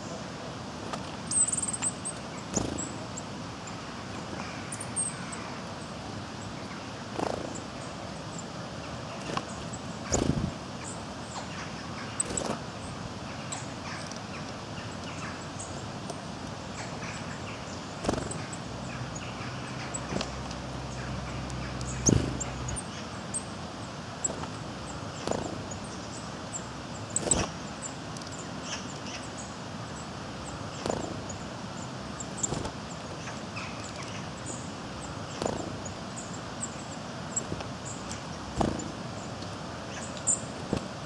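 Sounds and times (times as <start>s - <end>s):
outdoor hiss: 0.0s - 41.0s
faint high bird calls: 1.3s - 41.0s
birds landing on wooden board: 25.2s - 25.7s, 35.3s - 35.9s, 38.5s - 39.0s.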